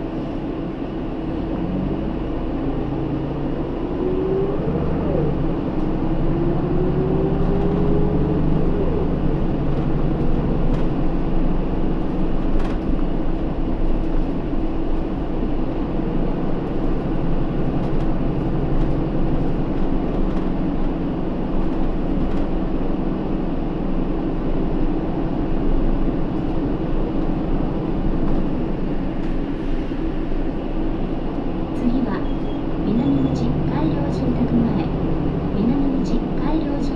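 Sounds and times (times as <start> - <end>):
bus diesel engine running: 0.0 - 36.9
rising drivetrain whine: 1.2 - 12.2.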